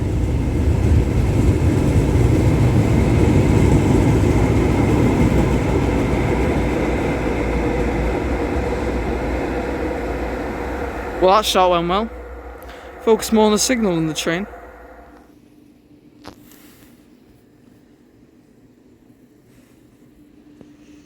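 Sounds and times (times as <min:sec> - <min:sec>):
train rumbling: 0:00.0 - 0:15.2.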